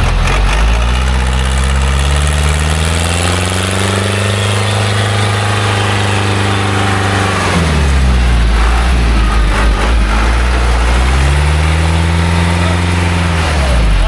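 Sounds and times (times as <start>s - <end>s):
truck engine under load: 0.0s - 14.0s.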